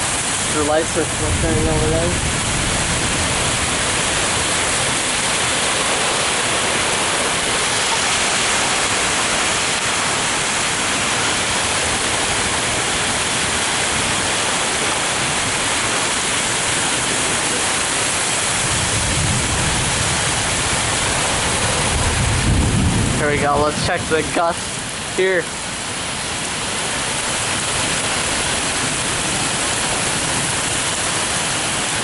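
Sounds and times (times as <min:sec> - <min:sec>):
low rumble of thunder: 0:00.0 - 0:07.6, 0:18.4 - 0:24.4
heavy rain pouring: 0:00.0 - 0:32.0.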